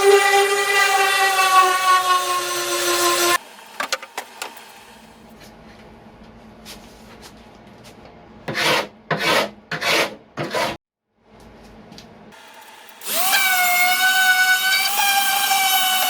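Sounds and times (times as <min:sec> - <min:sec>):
hand tool scraping wood: 0:08.5 - 0:10.8.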